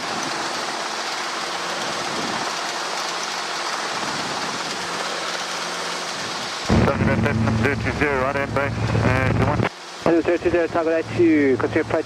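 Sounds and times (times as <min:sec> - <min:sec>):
faint low hum: 0:06.7 - 0:09.7
radio transmission: 0:06.7 - 0:10.7
radio hiss: 0:06.7 - 0:12.0.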